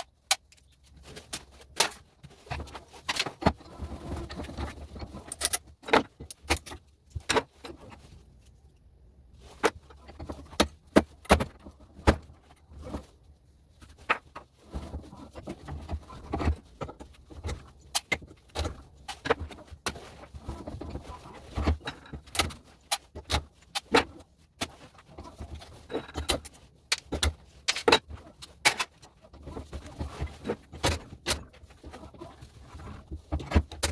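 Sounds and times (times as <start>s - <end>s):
metal parts knocking together: 25.8s - 29.0s.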